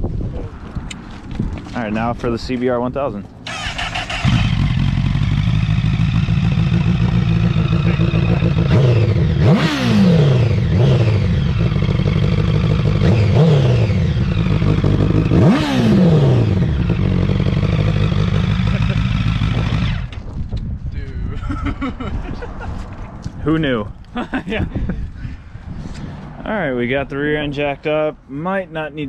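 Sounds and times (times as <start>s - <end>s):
motorcycle engine idling and revving: 3.2s - 20.6s.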